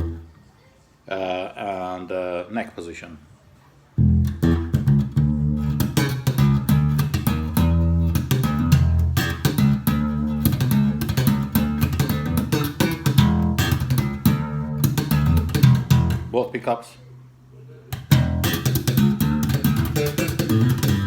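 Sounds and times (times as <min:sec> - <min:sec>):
electric bass plucked notes: 0:00.0 - 0:00.3, 0:04.0 - 0:16.4, 0:17.9 - 0:21.0.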